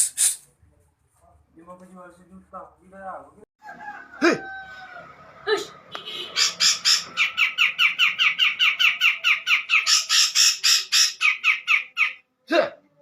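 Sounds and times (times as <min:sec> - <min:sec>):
bird harsh chattering: 0:06.0 - 0:12.2.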